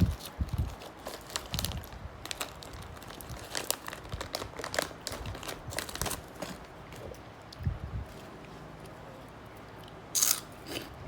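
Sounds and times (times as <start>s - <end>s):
crispy food crunching: 0.0s - 7.6s, 9.8s - 10.9s.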